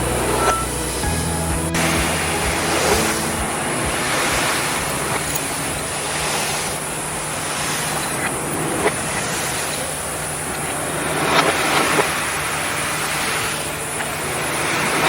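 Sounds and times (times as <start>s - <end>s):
low hum: 0.0s - 7.7s
steady rushing hiss: 0.0s - 15.0s.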